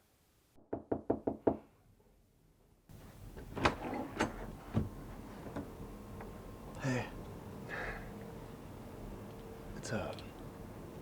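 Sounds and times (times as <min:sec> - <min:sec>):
knuckles knocking on door: 0:00.7 - 0:01.6.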